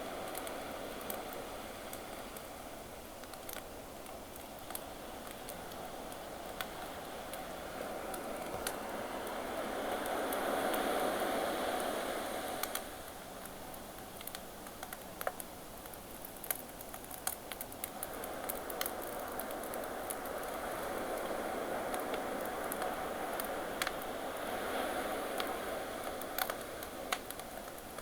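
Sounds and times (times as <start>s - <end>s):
ocean waves: 6.9s - 13.0s, 18.1s - 27.4s
campfire crackling and popping: 12.5s - 24.5s, 25.3s - 28.0s.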